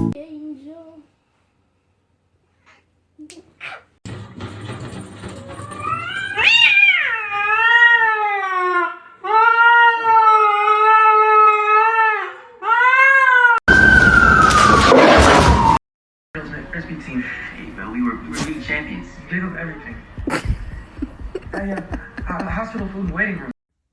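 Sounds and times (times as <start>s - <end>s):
cat yowling: 3.4s - 4.0s, 5.9s - 13.6s.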